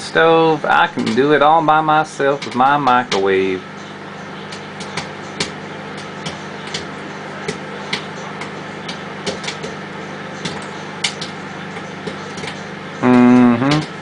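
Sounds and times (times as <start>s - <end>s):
microwave oven hum: 0.0s - 14.0s
popcorn popping: 0.7s - 3.6s, 4.3s - 14.0s.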